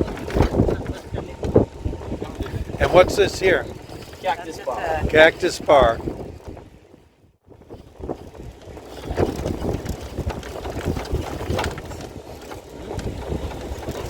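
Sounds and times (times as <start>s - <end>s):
tram rumbling and rattling: 0.0s - 6.9s, 7.5s - 14.0s
wind on microphone: 0.0s - 14.0s.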